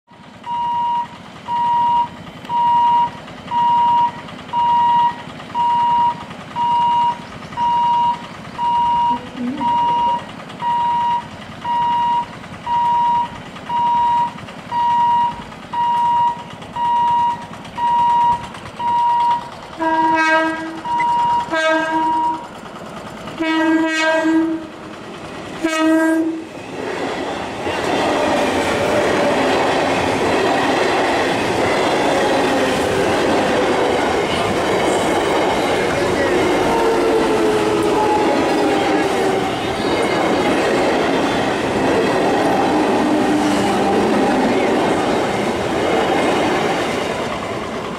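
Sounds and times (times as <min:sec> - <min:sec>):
train wheels rumbling and clattering: 0:00.1 - 0:47.9
crossing warning hooter beeping: 0:00.3 - 0:47.9
train horn blasts: 0:19.8 - 0:22.4, 0:23.4 - 0:24.7, 0:25.6 - 0:26.5, 0:36.2 - 0:40.1, 0:42.4 - 0:44.2.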